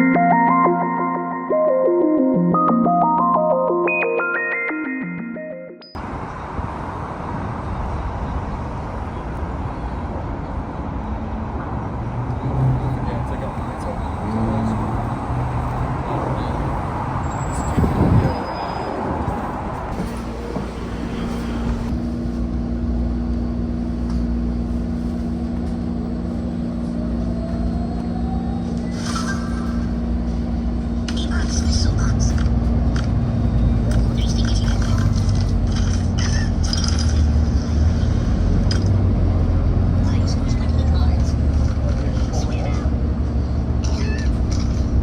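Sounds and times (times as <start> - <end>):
synthesizer tune: 0.0 - 6.0
city bus rumble: 6.0 - 45.0.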